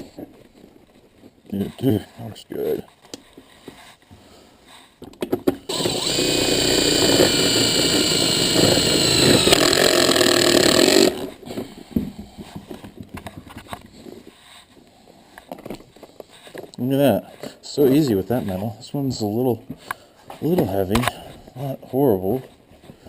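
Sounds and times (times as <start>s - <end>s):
power tool motor whining: 5.7s - 11.3s.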